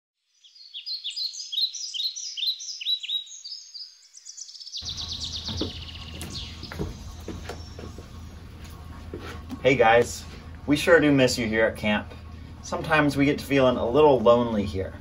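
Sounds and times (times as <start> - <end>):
songbirds chirping: 0.2 - 15.0
low background rumble: 4.8 - 15.0.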